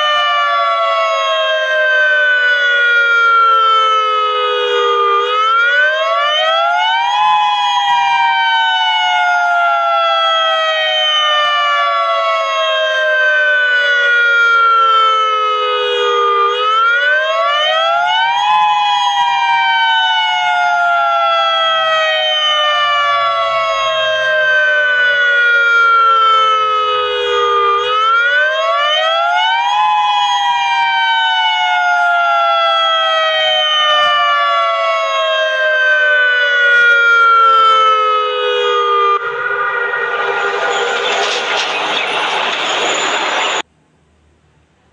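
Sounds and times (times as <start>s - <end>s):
two-tone warning siren wailing: 0.0s - 43.7s
loud rushing noise: 39.2s - 43.6s.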